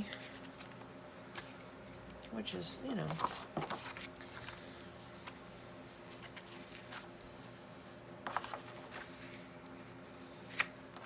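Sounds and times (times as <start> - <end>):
paper rustling: 3.0 - 7.1, 8.2 - 9.9.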